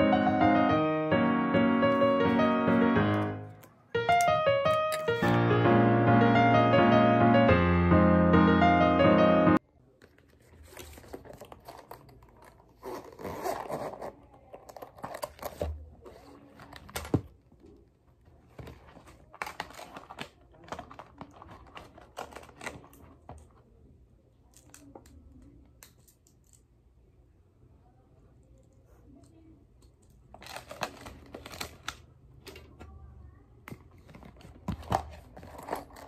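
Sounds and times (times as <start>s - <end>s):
plastic pencil case rustling: 10.0s - 23.6s, 30.3s - 32.9s, 33.7s - 36.0s.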